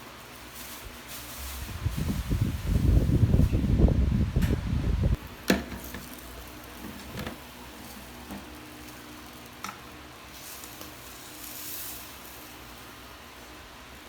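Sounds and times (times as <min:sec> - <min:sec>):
low rumble: 0:01.4 - 0:05.2.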